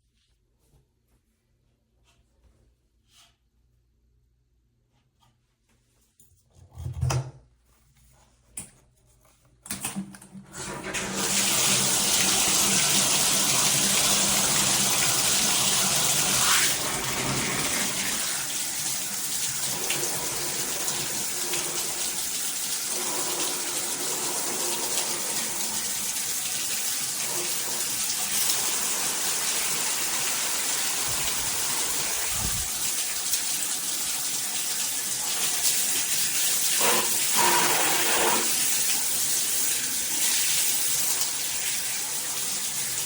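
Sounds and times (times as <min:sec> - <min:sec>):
water spraying from shower head: 0:11.0 - 0:43.0.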